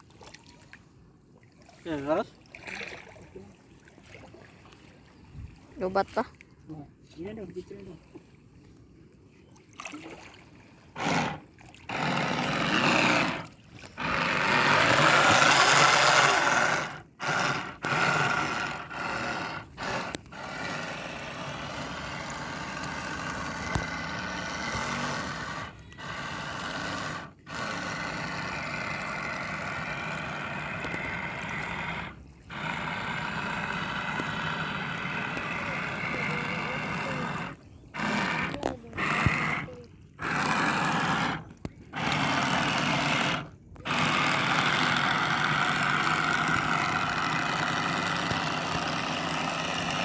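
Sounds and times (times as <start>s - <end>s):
boat motor rough noise: 10.8s - 50.0s
motor whine: 11.0s - 50.0s.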